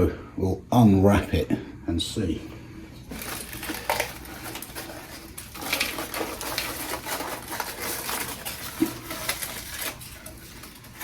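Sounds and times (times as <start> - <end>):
aluminium foil crinkling: 3.0 - 11.0.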